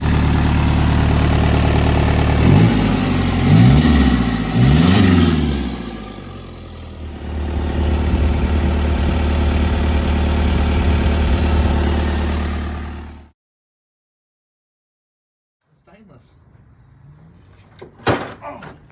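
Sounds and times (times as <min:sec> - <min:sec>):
diesel engine idling and revving: 0:00.0 - 0:13.3.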